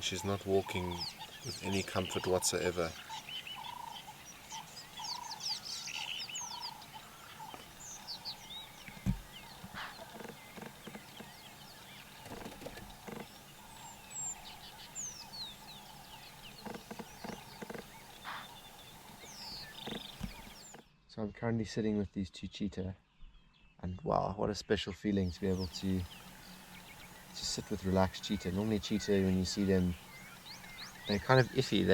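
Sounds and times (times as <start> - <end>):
wild birds chirping and whistling: 0.0 - 21.0, 25.0 - 31.9
low repeated bird calls: 0.0 - 21.1, 25.0 - 31.9
low thump: 8.9 - 9.4.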